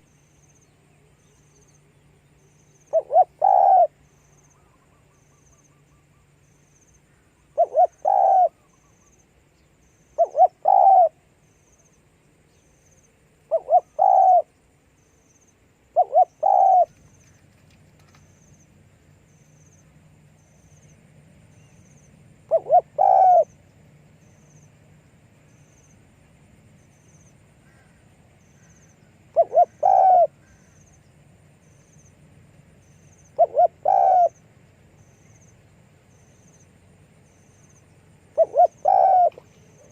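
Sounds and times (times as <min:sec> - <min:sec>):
dove cooing: 0:02.9 - 0:04.0, 0:07.6 - 0:08.7, 0:10.2 - 0:11.2, 0:13.5 - 0:14.5, 0:16.0 - 0:17.0, 0:22.5 - 0:23.6, 0:29.3 - 0:30.8, 0:33.4 - 0:34.4, 0:38.3 - 0:39.9.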